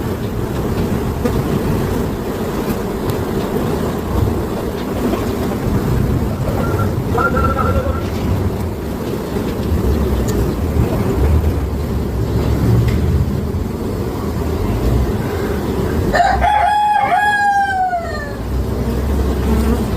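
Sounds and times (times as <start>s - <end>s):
steady low rumble: 0.0s - 16.5s
rooster crowing: 6.4s - 8.1s, 15.3s - 18.7s.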